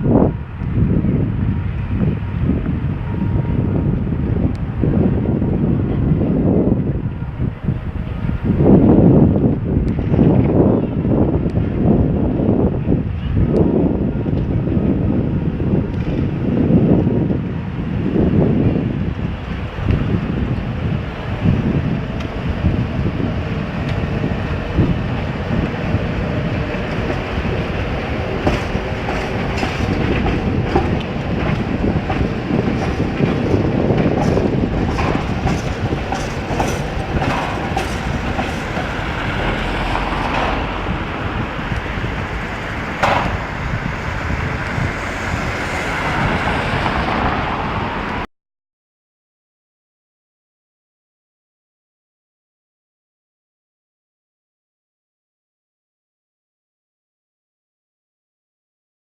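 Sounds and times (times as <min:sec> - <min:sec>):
tram wheels rumbling: 0:00.0 - 0:48.3
wheels clicking over rails: 0:26.5 - 0:44.9.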